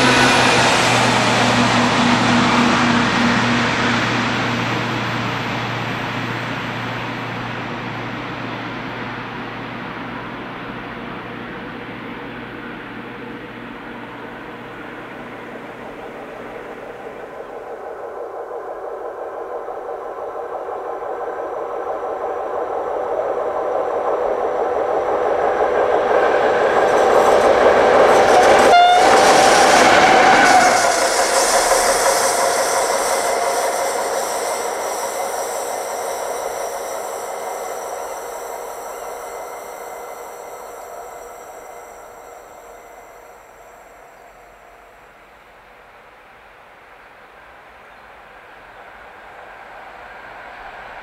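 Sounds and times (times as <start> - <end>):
freight train wheels on rails: 0.0 - 51.0
train horn blast: 28.2 - 34.8.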